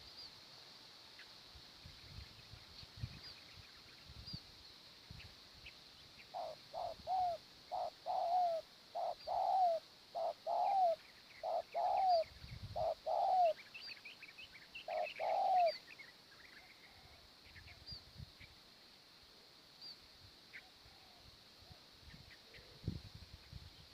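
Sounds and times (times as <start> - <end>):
small birds chirping: 1.0 - 18.8
dove cooing: 6.3 - 13.6, 14.9 - 15.8.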